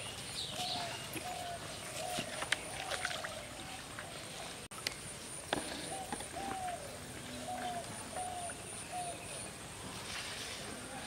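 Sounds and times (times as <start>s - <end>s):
bird calling: 0.0s - 4.4s, 5.7s - 9.5s.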